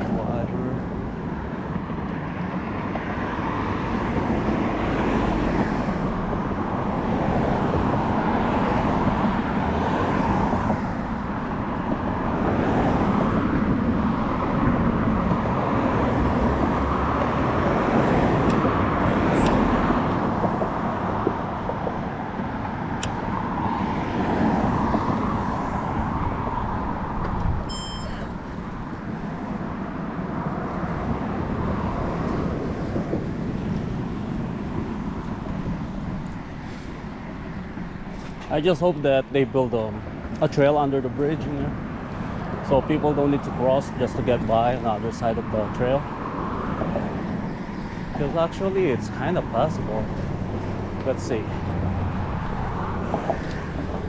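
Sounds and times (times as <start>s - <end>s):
cars passing on street: 0.0s - 54.0s
brief high ringing: 27.7s - 28.3s.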